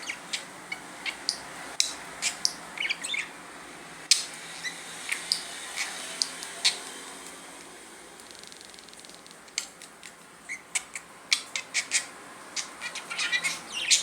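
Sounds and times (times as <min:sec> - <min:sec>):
budgerigar chattering: 0:00.0 - 0:03.3, 0:10.5 - 0:14.0.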